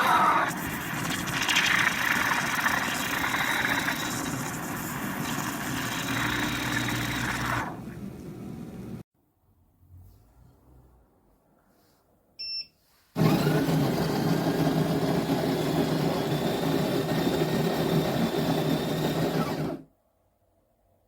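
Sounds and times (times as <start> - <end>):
coffee bean grinder grinding: 0.0 - 7.9, 13.2 - 19.8
short electronic beep: 12.4 - 12.8.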